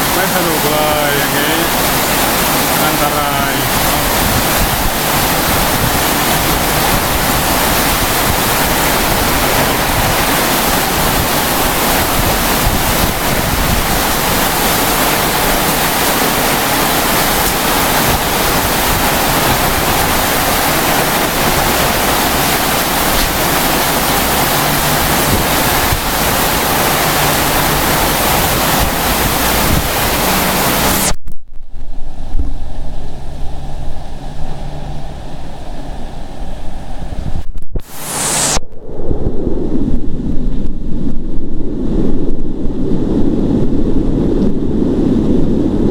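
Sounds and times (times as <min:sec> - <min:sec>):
torrential rain pouring: 0:00.0 - 0:31.2, 0:37.8 - 0:38.6.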